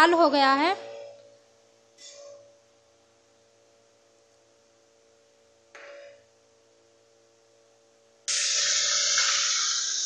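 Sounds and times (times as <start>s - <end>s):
paste sizzling in hot oil: 8.3s - 10.0s.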